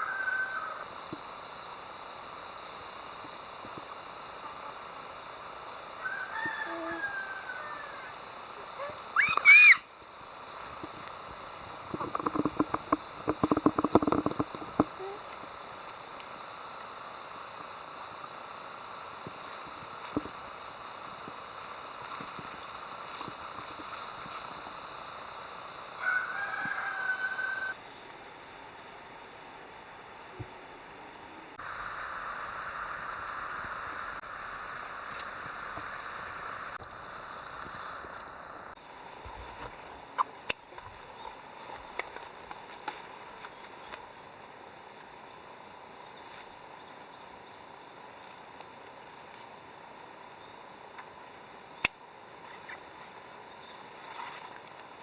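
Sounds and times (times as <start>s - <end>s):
steady high hiss: 0.0s - 55.0s
bird calls: 8.7s - 9.9s.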